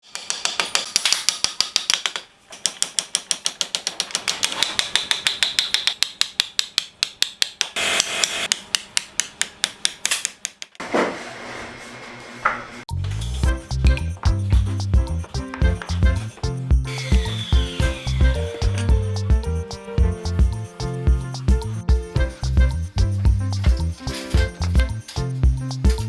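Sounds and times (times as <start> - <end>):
rapid hammer strikes: 16.9 - 19.3.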